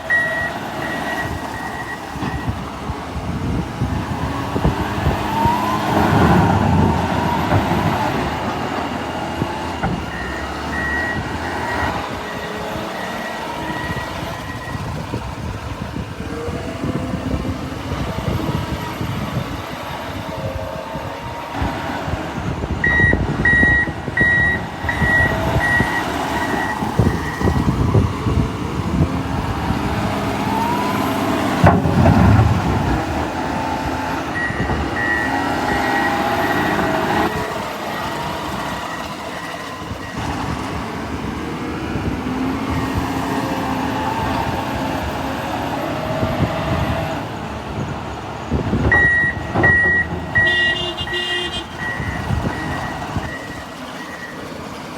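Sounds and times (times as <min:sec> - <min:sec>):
reversing alarm beeping: 0:00.0 - 0:02.7, 0:09.2 - 0:15.1, 0:22.8 - 0:28.4, 0:33.6 - 0:40.6, 0:48.9 - 0:54.5
diesel engine revving: 0:00.0 - 0:54.9.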